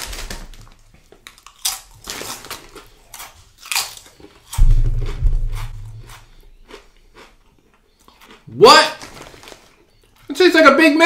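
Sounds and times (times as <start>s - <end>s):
tortilla chip crunching: 0.0s - 10.2s
loud low rumble: 4.6s - 6.7s.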